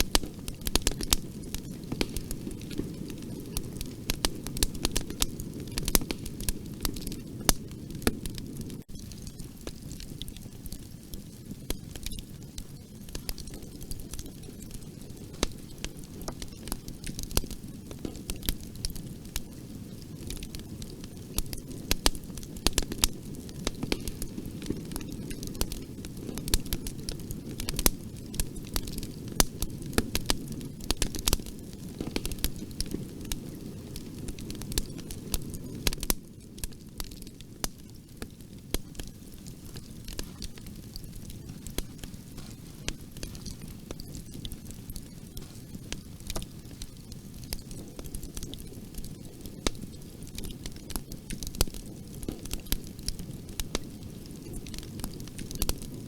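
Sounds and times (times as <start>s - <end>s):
bonfire rumbling: 0.0s - 56.0s
burning wood crackling and popping: 0.0s - 56.0s.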